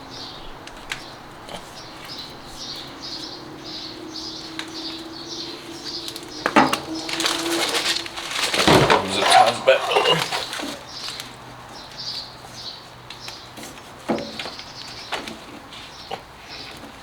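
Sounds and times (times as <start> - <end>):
small bird chirping: 0.0 - 8.1.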